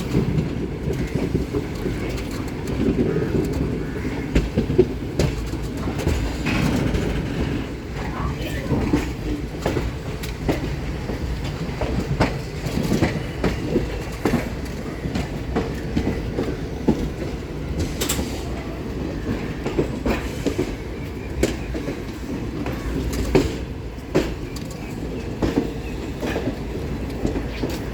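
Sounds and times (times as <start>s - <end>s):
train wheels clacking over rail joints: 0.0s - 27.9s.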